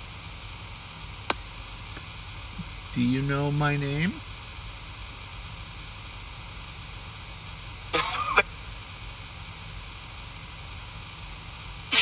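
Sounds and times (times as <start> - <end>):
steady hiss: 0.0 - 12.0
short voice-like sound: 2.6 - 4.2.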